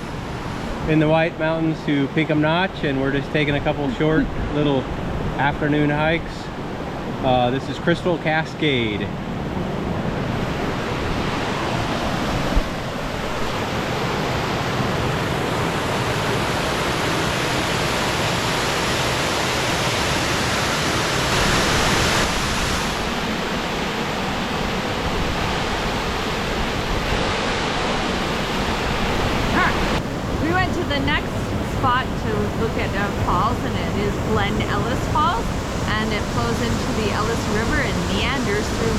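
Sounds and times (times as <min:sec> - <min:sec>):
waterfall rushing: 0:10.4 - 0:38.9.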